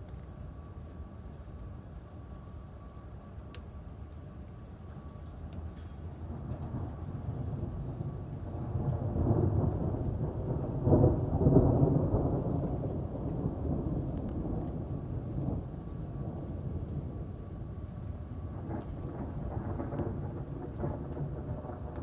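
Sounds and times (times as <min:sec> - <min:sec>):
steady rain: 0:00.0 - 0:22.0
rolling thunder: 0:06.2 - 0:22.0.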